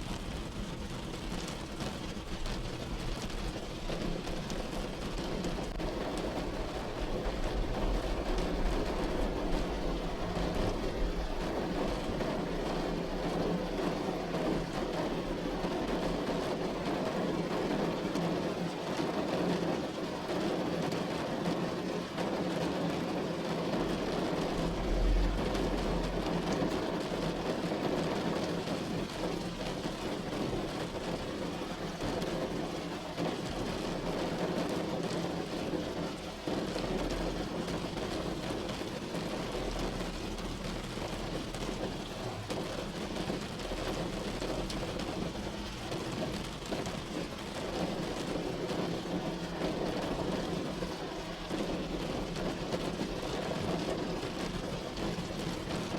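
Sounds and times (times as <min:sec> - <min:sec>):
heavy rain on a roof: 0:00.0 - 0:55.9
deep low rumble: 0:24.6 - 0:26.6.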